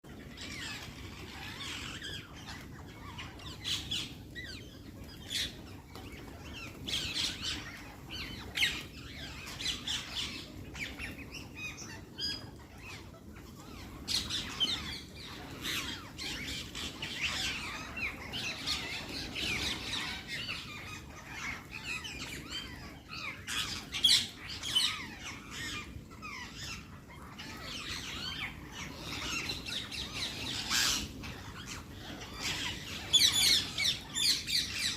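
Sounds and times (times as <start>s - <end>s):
parrots squawking: 0.2s - 34.9s.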